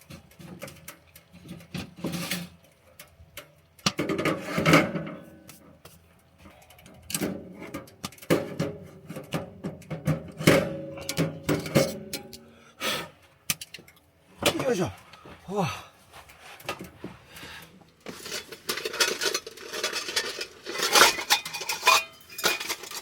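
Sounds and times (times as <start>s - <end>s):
objects knocking and clattering: 0.0s - 12.4s, 17.9s - 23.0s.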